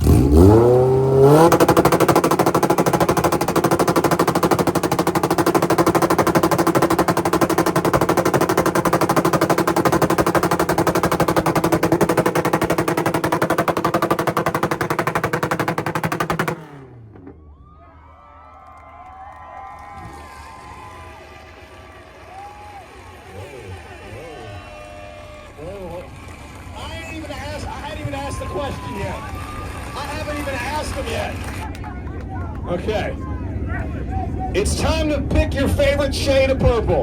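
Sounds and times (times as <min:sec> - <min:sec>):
exhaust pops: 0:00.0 - 0:17.4, 0:19.8 - 0:33.1
car engine on rev limiter: 0:00.0 - 0:17.6, 0:20.0 - 0:32.0.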